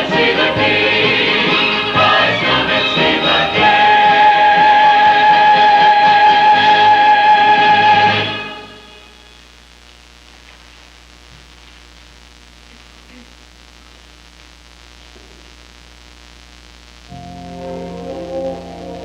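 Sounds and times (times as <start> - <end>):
choir singing a chord: 0.0 - 9.2
tape hiss: 0.0 - 19.0
low mains hum: 3.6 - 19.0
sustained instrumental chord: 17.1 - 19.0.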